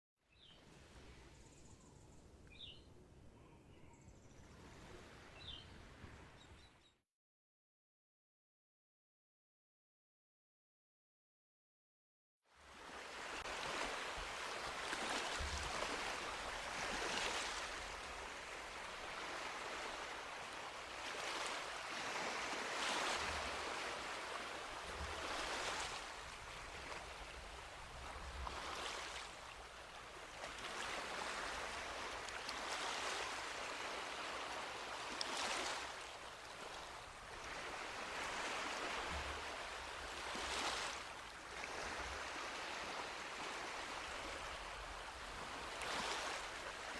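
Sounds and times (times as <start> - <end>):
sea waves washing onto beach: 12.8 - 46.9.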